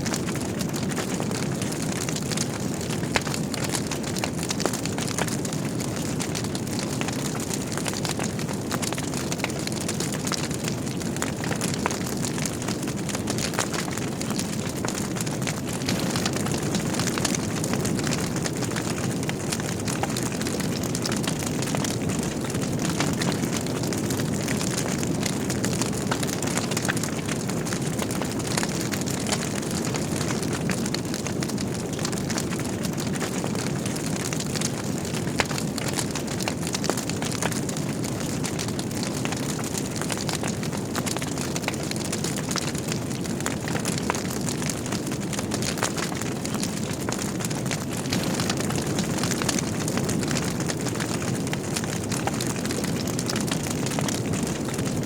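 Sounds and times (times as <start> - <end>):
wood fire crackling: 0.0 - 55.0
loud pop from burning logs: 15.0 - 20.0, 47.9 - 50.9.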